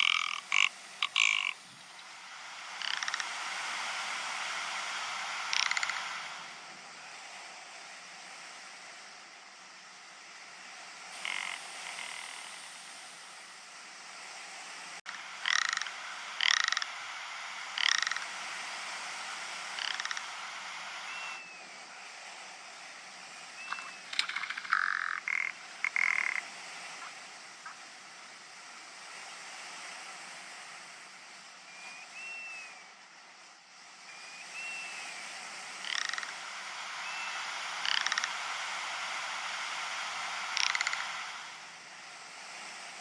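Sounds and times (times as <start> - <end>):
ptarmigan rattling calls: 0.0 - 2.0, 2.7 - 3.4, 5.3 - 6.2, 11.2 - 12.7, 15.1 - 18.4, 19.7 - 21.4, 23.6 - 27.8, 35.8 - 38.5, 40.4 - 41.4
steady hiss: 0.0 - 43.0.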